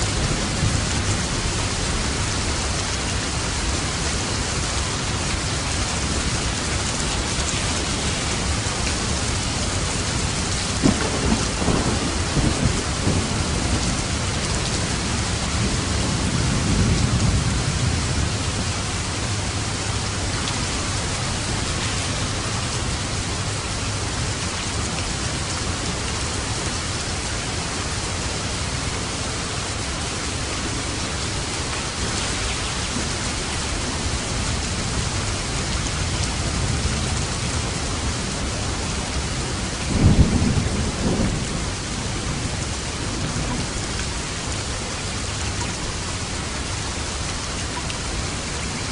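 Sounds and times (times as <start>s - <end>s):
heavy rain: 0.0s - 48.9s
thunderclap rolling into rumble: 10.5s - 18.8s, 39.0s - 43.7s.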